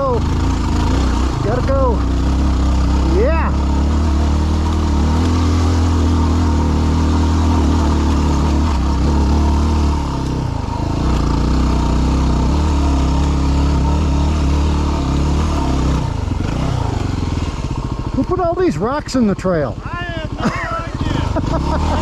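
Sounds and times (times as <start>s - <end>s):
motorcycle engine under load: 0.0s - 22.0s.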